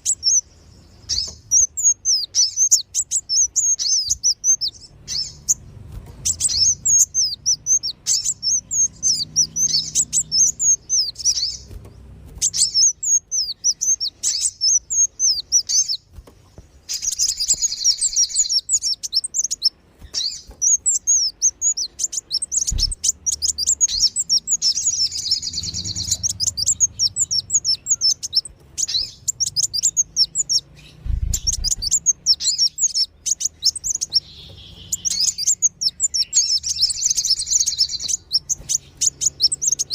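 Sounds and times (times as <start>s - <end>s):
sunbirds chirping and twittering: 0.0s - 39.9s
low thuds: 22.6s - 23.1s, 31.0s - 32.0s.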